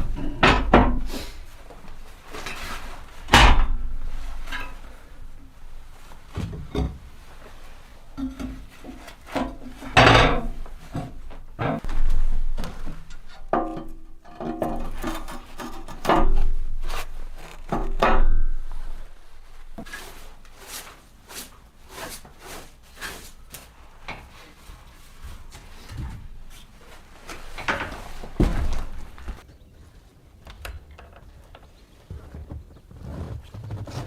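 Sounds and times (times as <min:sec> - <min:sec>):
heavy thuds: 0:27.6 - 0:29.4.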